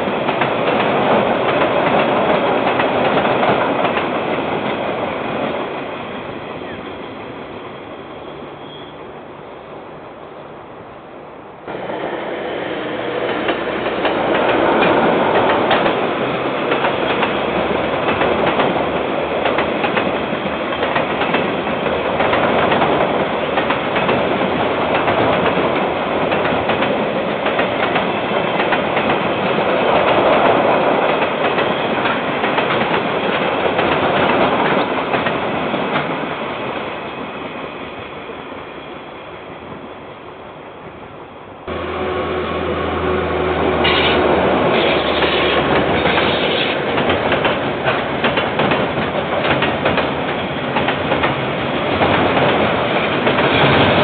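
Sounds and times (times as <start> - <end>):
train rolling past: 0.0 - 54.0
wheels clicking over rail joints: 44.8 - 54.0.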